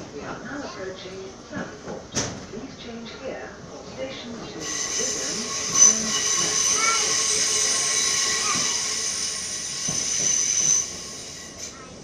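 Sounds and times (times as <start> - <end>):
train wheels squealing: 4.6 - 11.9.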